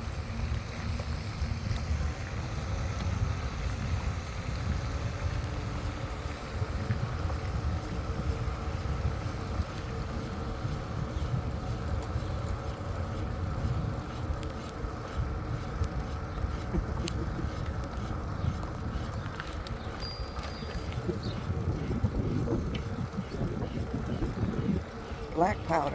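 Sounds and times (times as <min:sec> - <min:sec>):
wind buffeting microphone: 0:00.0 - 0:25.9.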